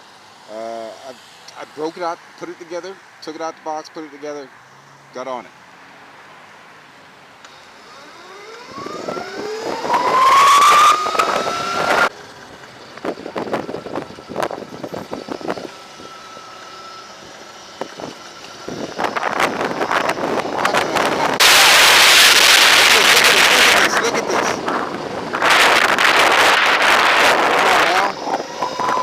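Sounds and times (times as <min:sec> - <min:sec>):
electric motorbike motor whining: 0:07.4 - 0:29.0
wind buffeting microphone: 0:17.8 - 0:29.0.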